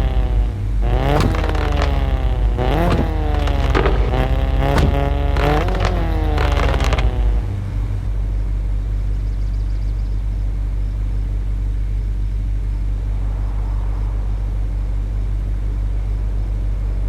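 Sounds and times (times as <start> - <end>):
car exhaust revving and crackling: 0.0 - 9.3
car engine idling: 0.0 - 10.4.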